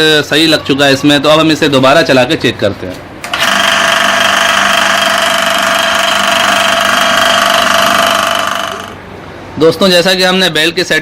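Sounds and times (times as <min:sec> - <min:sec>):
water pump electric motor running: 0:03.3 - 0:09.0.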